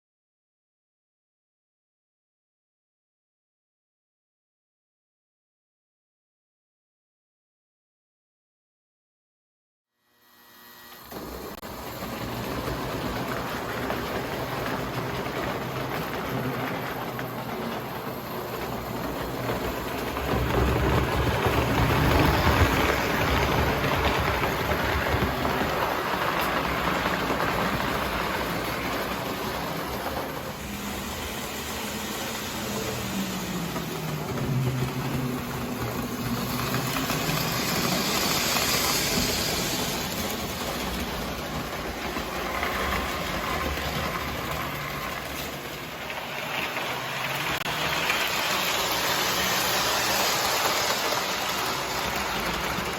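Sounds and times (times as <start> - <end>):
wheels rolling on rails: 11.0 - 52.9
toy train motor whirring: 20.0 - 45.9, 46.6 - 52.9.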